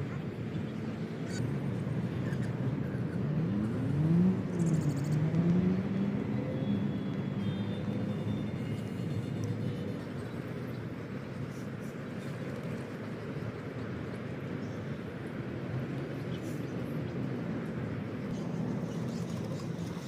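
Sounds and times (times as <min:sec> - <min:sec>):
vehicle engine passing: 0:02.3 - 0:07.1.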